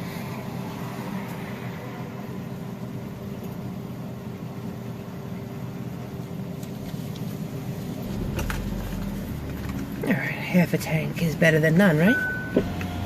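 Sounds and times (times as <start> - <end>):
car engine running: 6.7 - 13.0.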